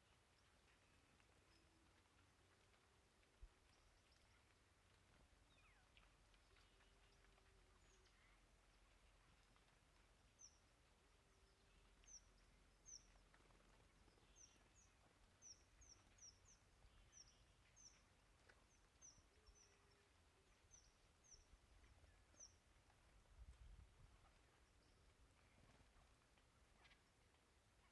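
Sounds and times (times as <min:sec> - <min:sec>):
quiet background rumble: 0:00.0 - 0:27.9
small songbirds chirping: 0:00.0 - 0:27.9.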